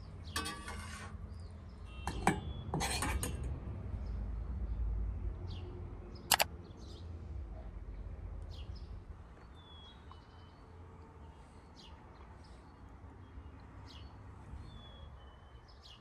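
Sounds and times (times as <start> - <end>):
small birds chirping: 5.5 - 16.0
sharp click: 6.3 - 6.5.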